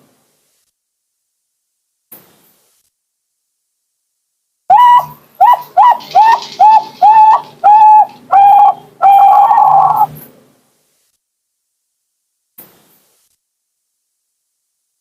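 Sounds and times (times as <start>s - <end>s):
dove cooing: 4.7s - 10.2s.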